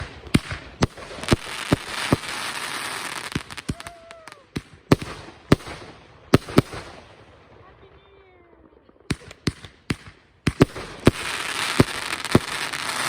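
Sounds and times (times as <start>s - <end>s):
fireworks crackling hiss: 0.0s - 7.0s, 10.6s - 13.0s
fireworks bangs: 0.0s - 13.0s.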